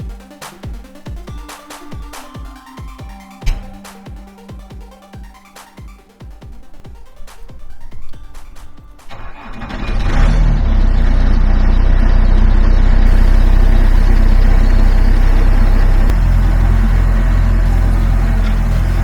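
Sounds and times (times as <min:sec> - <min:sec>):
loader diesel engine droning: 0:09.1 - 0:19.0.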